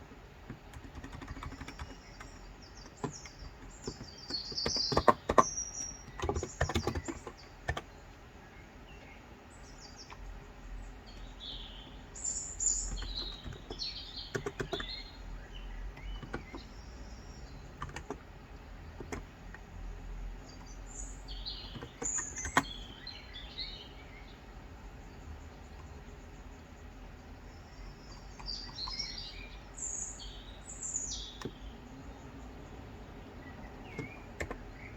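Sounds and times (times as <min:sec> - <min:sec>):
birds chirping: 0:00.0 - 0:34.9
keyboard typing: 0:00.4 - 0:08.0, 0:12.8 - 0:15.2, 0:16.0 - 0:16.8, 0:17.6 - 0:19.7, 0:21.5 - 0:23.0, 0:28.1 - 0:29.4, 0:33.7 - 0:34.9.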